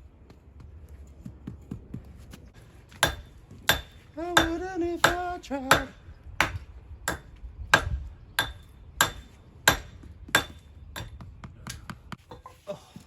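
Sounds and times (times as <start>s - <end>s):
hammer striking stone: 3.0s - 11.9s.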